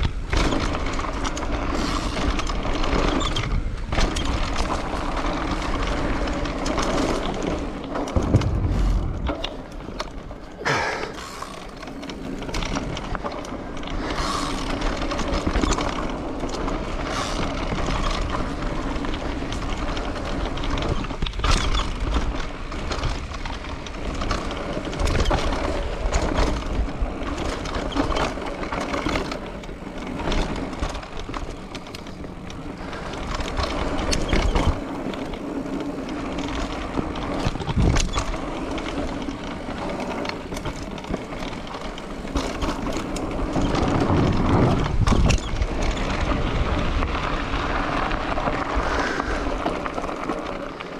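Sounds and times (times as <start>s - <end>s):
bike knocks and rattles: 0.0s - 50.9s
bike tyre and drivetrain noise: 0.0s - 50.9s
wind on microphone: 8.2s - 11.5s, 43.4s - 49.9s.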